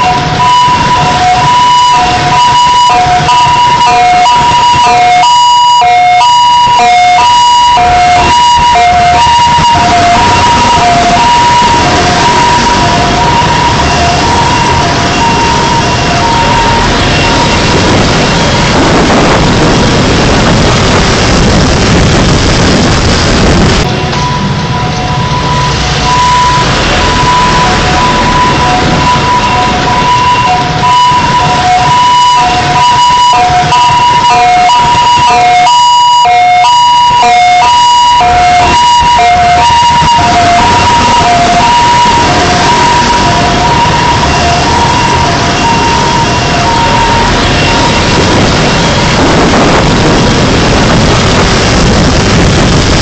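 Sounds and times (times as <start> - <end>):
car road and engine noise: 0.0 - 53.0
two-tone emergency siren: 0.0 - 53.0.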